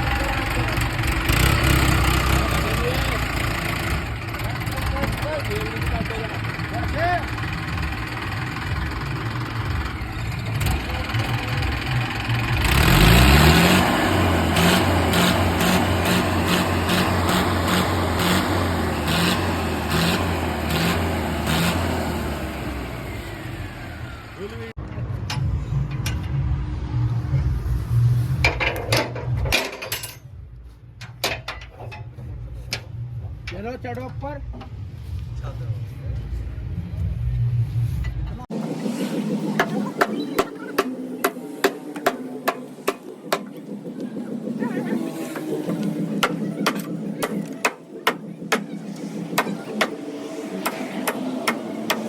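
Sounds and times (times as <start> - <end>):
diesel tractor engine: 0.0 - 26.8, 38.4 - 52.0
deep steady rumble: 1.9 - 21.5.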